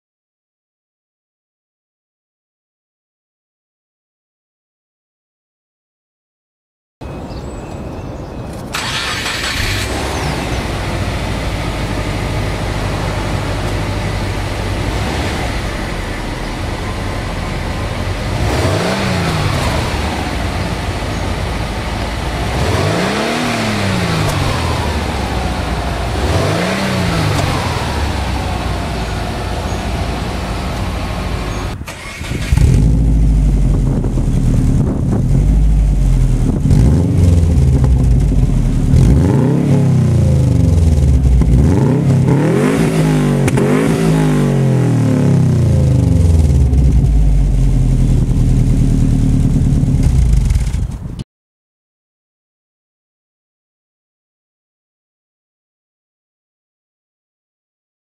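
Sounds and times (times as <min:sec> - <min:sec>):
car engine idling and revving: 0:08.7 - 0:51.2.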